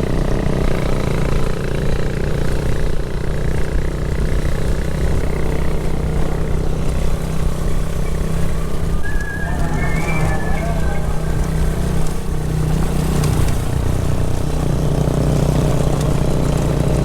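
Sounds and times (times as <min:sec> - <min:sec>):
motorcycle engine running: 0:00.0 - 0:17.0
wavering higher tone: 0:07.0 - 0:13.6.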